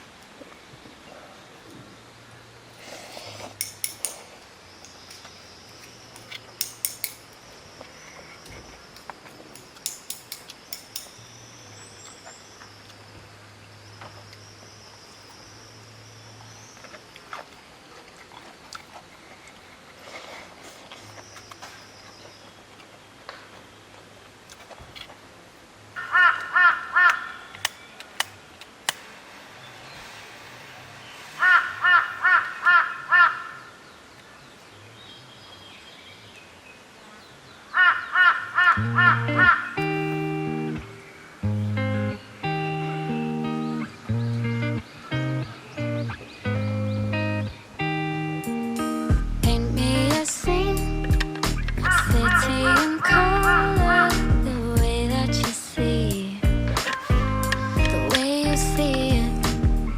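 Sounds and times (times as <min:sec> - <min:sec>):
sharp clicks: 0:03.5 - 0:07.4, 0:08.4 - 0:11.3, 0:27.1 - 0:29.1, 0:49.5 - 0:53.1, 0:56.5 - 0:59.9
crow cawing: 0:26.0 - 0:27.4, 0:31.4 - 0:33.7, 0:37.8 - 0:39.7
high-pitched buzz: 0:48.4 - 0:59.9.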